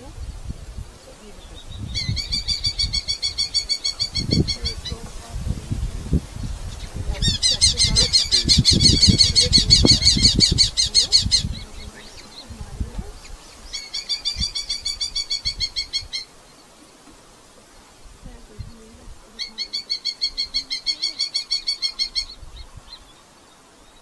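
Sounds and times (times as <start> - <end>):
falcon high chattering call: 7.2 - 12.5, 19.4 - 22.4.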